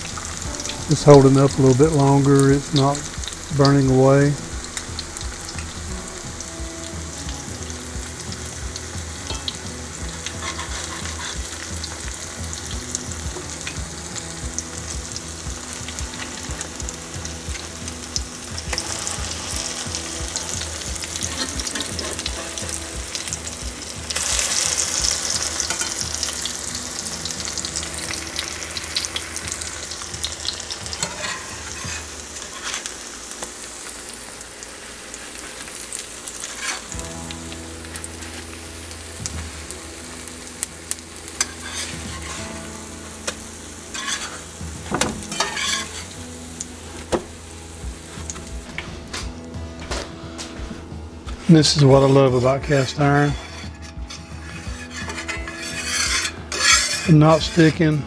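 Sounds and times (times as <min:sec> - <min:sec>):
patties sizzling in hot oil: 0:00.0 - 0:58.0.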